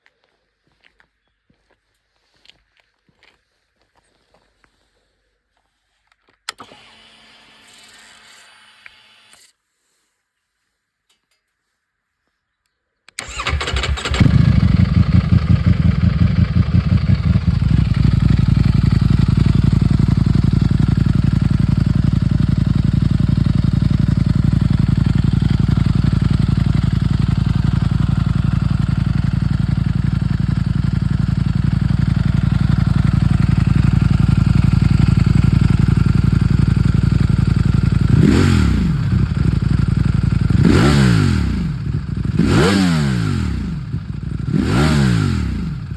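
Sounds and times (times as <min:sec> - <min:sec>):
motorcycle engine starting and idling: 0:06.5 - 0:07.4, 0:13.2 - 0:45.9
motorcycle engine revving: 0:13.2 - 0:45.9.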